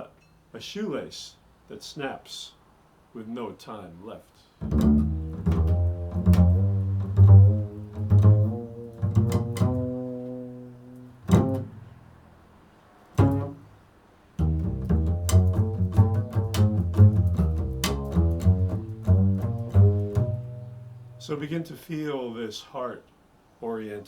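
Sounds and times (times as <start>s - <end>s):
plucked bass notes: 4.6s - 12.0s, 13.2s - 13.8s, 14.4s - 21.6s.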